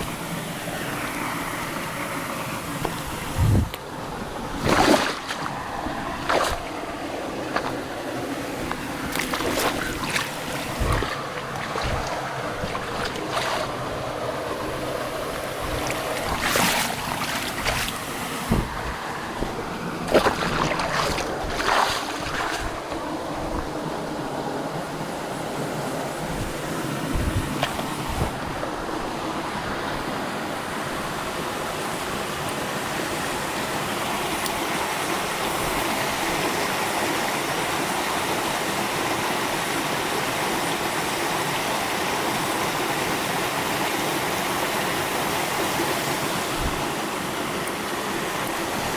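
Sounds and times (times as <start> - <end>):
stream water rushing: 0.0 - 48.9
low thumps: 8.6 - 23.8.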